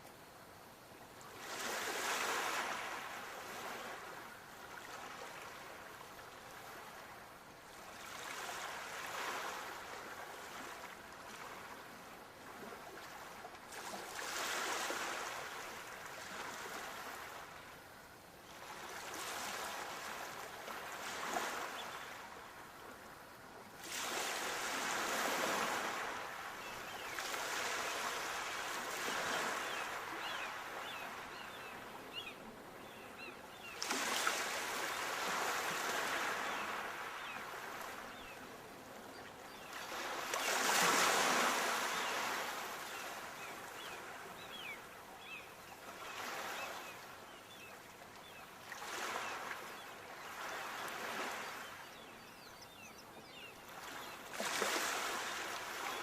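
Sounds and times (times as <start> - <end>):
sea waves breaking on shore: 7.8 - 17.6, 23.8 - 38.8, 39.5 - 47.6, 48.2 - 52.1, 52.8 - 56.0.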